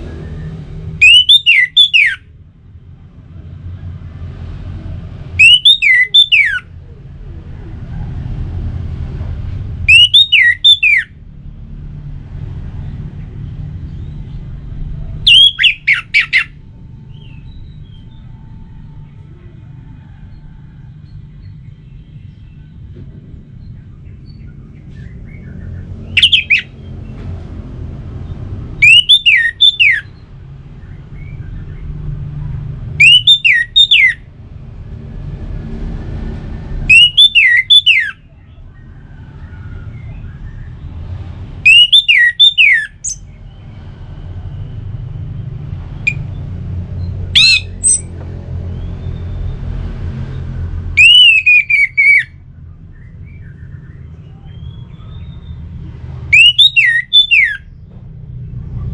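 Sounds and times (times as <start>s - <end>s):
thrush singing whistled notes: 0.0s - 2.4s, 5.3s - 6.7s, 9.8s - 11.2s, 13.4s - 19.3s, 23.6s - 27.0s, 28.2s - 31.9s, 33.0s - 34.3s, 36.8s - 41.0s, 41.6s - 48.1s, 48.7s - 57.8s.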